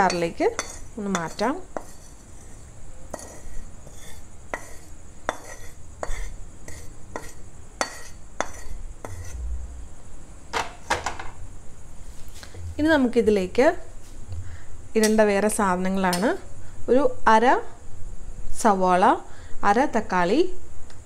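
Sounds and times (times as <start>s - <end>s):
utensil knocking and scraping pan: 0.0s - 9.4s.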